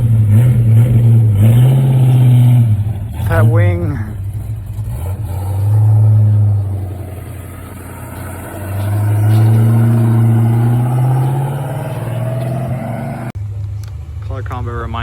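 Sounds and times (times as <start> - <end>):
car engine accelerating past: 4.4 - 13.4.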